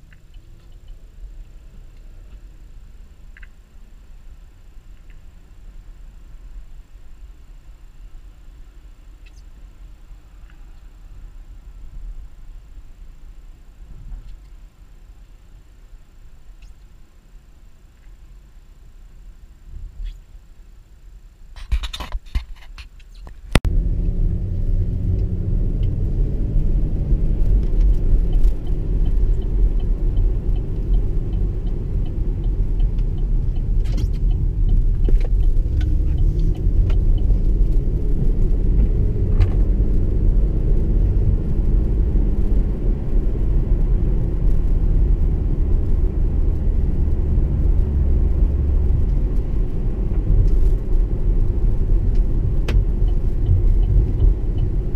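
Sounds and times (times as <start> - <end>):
car road noise: 0.0 - 21.5, 23.3 - 54.9
wind rumble on microphone: 10.4 - 14.6, 19.6 - 20.3, 21.6 - 54.9.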